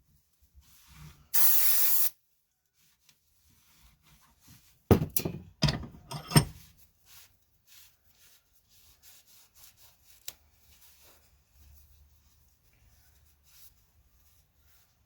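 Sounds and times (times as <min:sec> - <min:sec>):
metal part knocking on workbench: 0:04.9 - 0:06.6.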